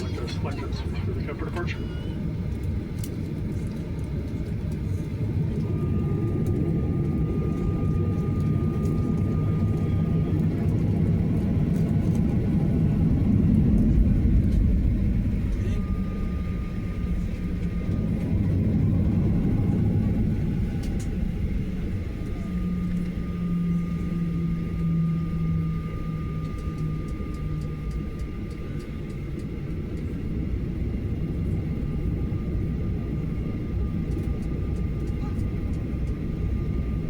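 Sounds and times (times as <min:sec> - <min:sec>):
thin steady whine: 0:00.0 - 0:02.8
jet engines heard in cabin: 0:00.0 - 0:37.0.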